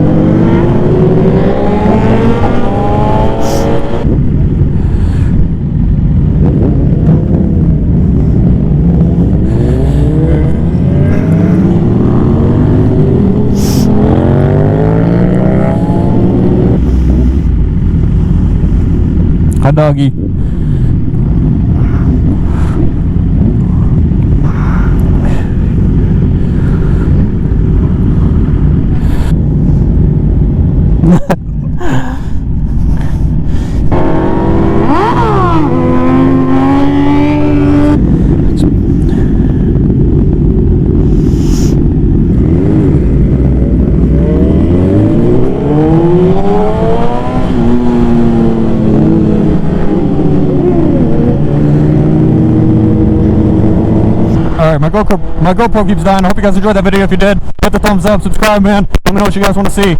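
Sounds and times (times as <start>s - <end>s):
motorcycle engine revving: 0.0s - 4.8s, 6.3s - 19.6s, 33.8s - 56.1s
wind rush on microphone: 0.0s - 59.9s.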